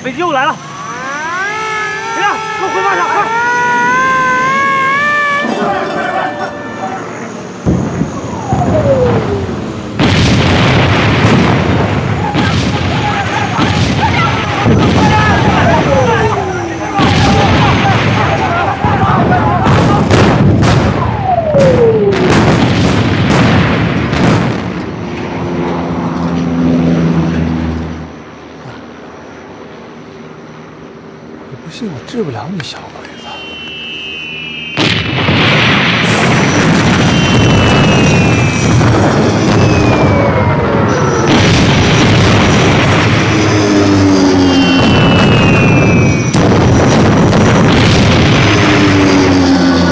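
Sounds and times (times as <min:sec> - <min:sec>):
bomb explosions: 0:00.0 - 0:25.4, 0:34.2 - 0:49.9
falling bomb whistle: 0:00.5 - 0:09.6, 0:20.7 - 0:22.4, 0:33.1 - 0:35.3, 0:36.0 - 0:47.0
deep rumble: 0:34.8 - 0:49.9.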